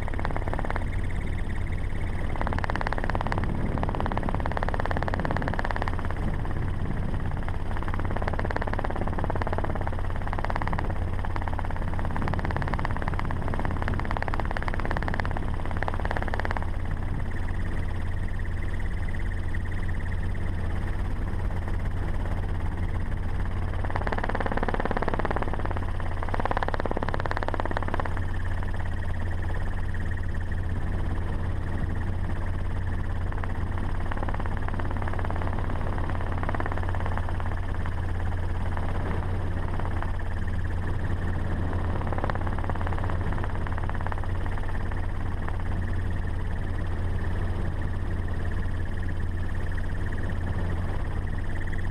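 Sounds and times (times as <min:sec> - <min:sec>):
road and wind noise: 0:00.0 - 0:51.9
truck engine drone: 0:00.0 - 0:51.9.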